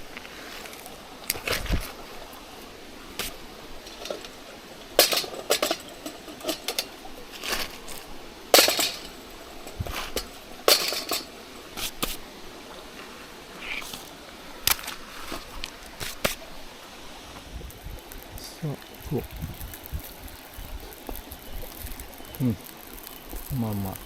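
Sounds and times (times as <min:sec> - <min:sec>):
utensil clinking on metal cookware: 0:10.2 - 0:11.3.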